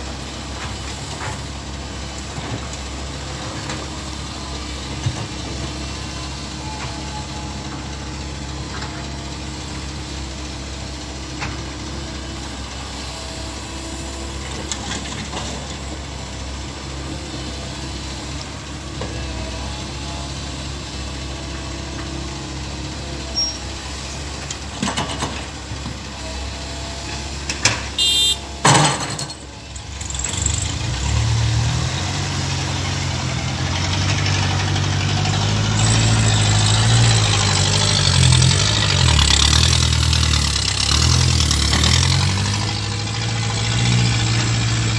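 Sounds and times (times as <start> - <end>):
excavator diesel engine running: 0.0 - 44.9
short high squeal: 23.3 - 23.7.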